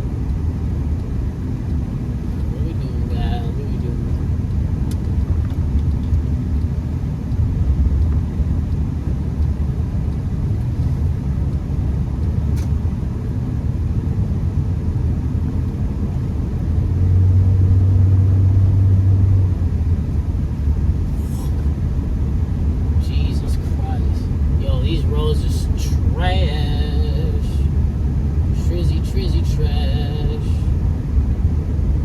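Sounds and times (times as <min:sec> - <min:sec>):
car engine and tyres rumbling: 0:00.0 - 0:32.0
deeper hum: 0:15.2 - 0:32.0.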